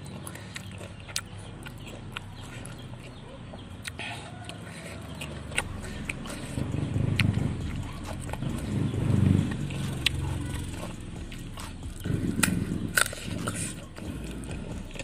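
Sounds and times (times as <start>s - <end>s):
chewing and crunching vegetables: 0.0s - 15.0s
wet mouth sounds: 0.0s - 15.0s.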